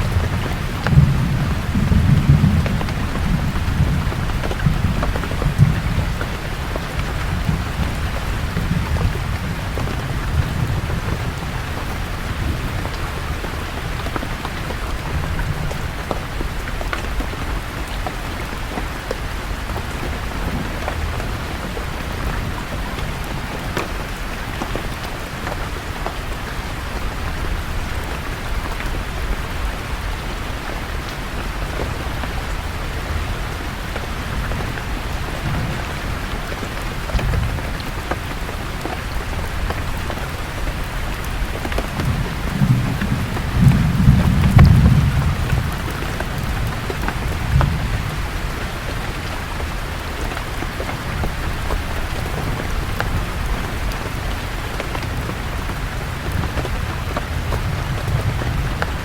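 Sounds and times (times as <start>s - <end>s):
low rumble of thunder: 0.0s - 26.0s, 26.7s - 59.0s
raindrops ticking: 0.0s - 59.0s
steady rain falling: 0.0s - 59.0s.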